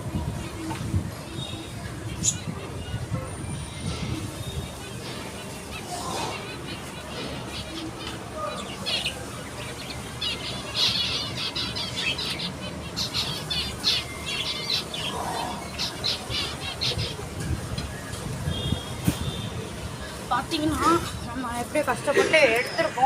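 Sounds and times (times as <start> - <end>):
budgerigars chattering and squawking: 0.3 - 18.8.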